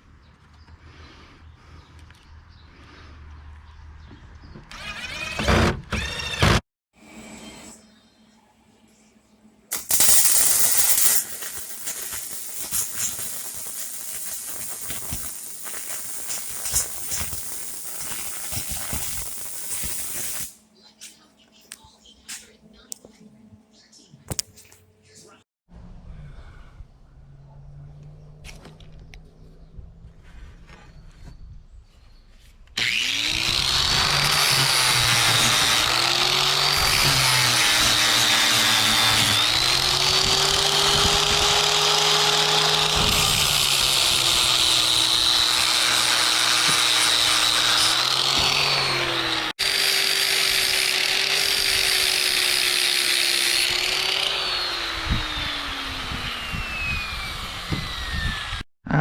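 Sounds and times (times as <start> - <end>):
angle grinder grinding metal: 4.7 - 6.6, 9.7 - 20.6, 32.8 - 58.6.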